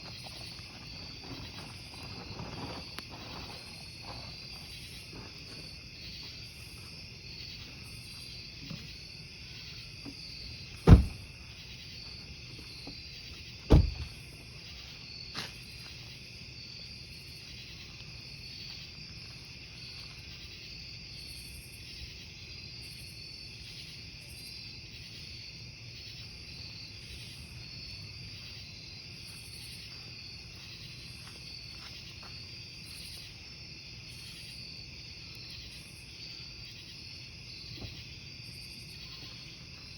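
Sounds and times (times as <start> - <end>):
crickets chirping: 0.0 - 39.9
burning logs popping: 10.1 - 11.4.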